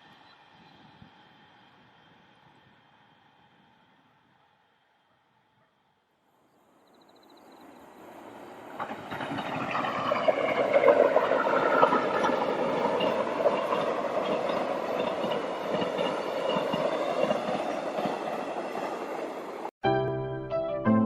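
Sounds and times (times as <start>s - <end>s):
train wheels rumbling: 8.0s - 19.7s.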